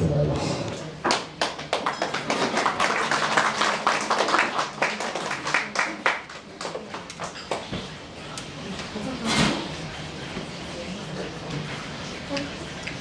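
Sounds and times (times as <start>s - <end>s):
audience applauding: 1.0s - 7.7s.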